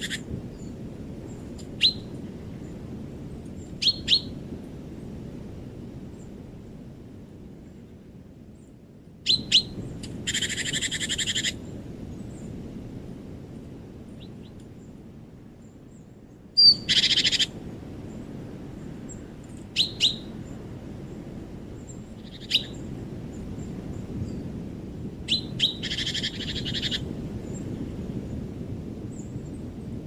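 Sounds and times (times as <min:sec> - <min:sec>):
songbird chip notes: 0:16.6 - 0:17.5, 0:19.1 - 0:20.6.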